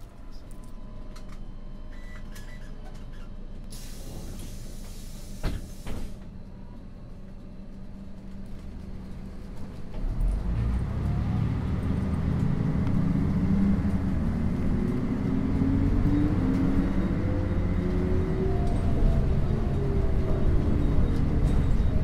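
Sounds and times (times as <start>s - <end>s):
bus engine hum: 0.0s - 22.0s
bus drive whine rising in pitch: 6.2s - 22.0s.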